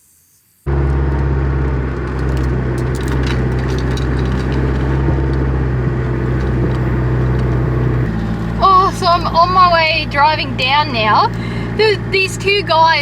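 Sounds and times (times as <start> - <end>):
vehicle engine running: 0.7 - 13.0
clicks and rattles: 0.8 - 9.1.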